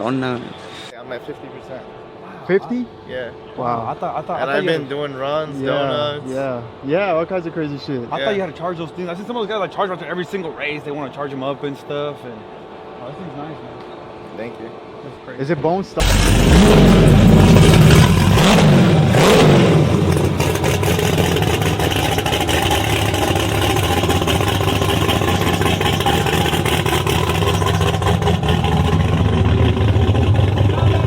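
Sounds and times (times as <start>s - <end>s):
engine revving: 16.0s - 31.0s.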